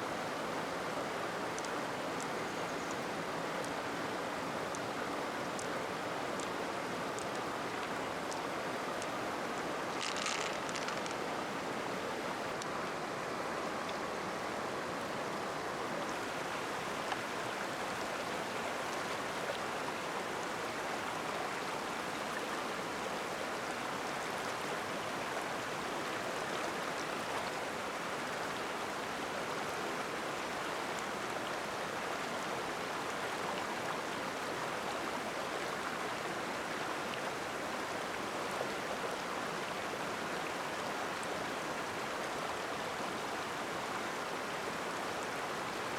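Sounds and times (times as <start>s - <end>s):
flowing water rushing: 0.0s - 45.9s
faint ticks: 1.5s - 3.0s, 5.5s - 11.2s.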